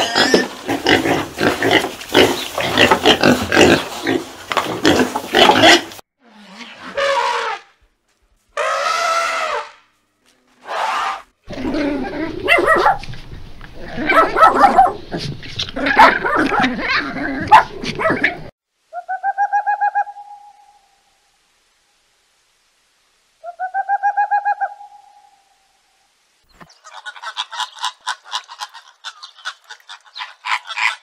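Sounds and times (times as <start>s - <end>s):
small dog barking: 12.4s - 13.1s, 13.8s - 15.0s, 15.8s - 18.4s
owl hooting: 18.9s - 21.2s, 23.4s - 25.7s.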